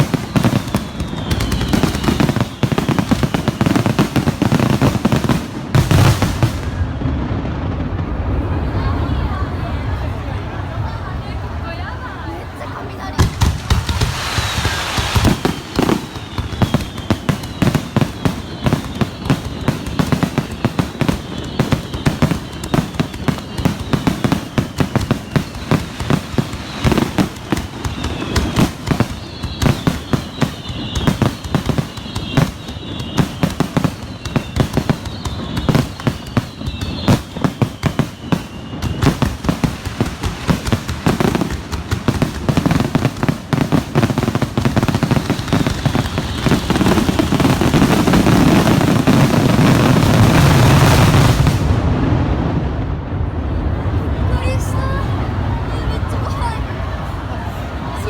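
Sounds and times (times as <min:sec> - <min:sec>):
fireworks whistles falling: 0:00.0 - 0:07.0, 0:13.2 - 0:51.7
fireworks launches and bursts: 0:00.0 - 0:11.6, 0:12.9 - 0:58.0.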